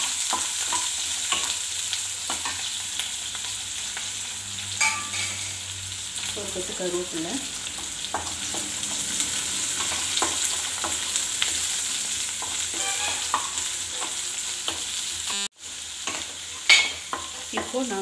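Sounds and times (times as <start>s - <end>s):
onions sizzling in hot oil: 0.0s - 18.0s
wooden spatula scraping a pan: 12.4s - 15.0s.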